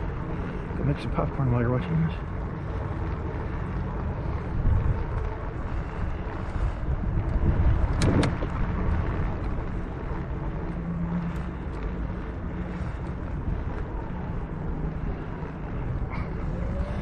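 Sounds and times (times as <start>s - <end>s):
bicycle rumble: 0.0s - 17.0s
wind buffeting microphone: 0.0s - 17.0s
sharp clicks: 7.8s - 8.6s.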